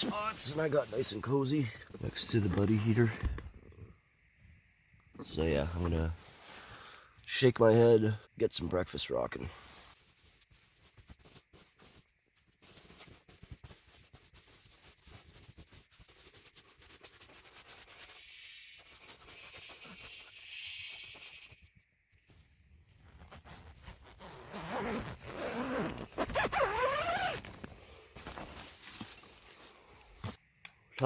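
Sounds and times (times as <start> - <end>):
tent zipper opening: 22.3 - 28.8
nylon fabric rustling: 22.9 - 29.8.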